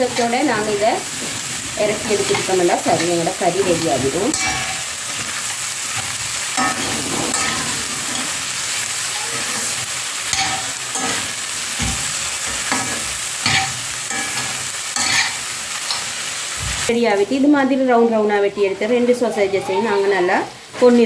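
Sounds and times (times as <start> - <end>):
utensil scraping a pan: 0.0 - 16.0
food sizzling in oil: 0.0 - 21.0.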